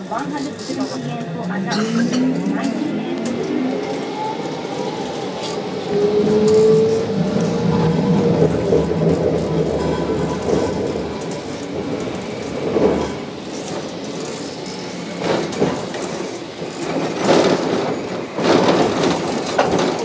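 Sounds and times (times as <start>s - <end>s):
streetcar motor hum: 0.0s - 20.0s
wheels rattling on track: 0.0s - 20.0s.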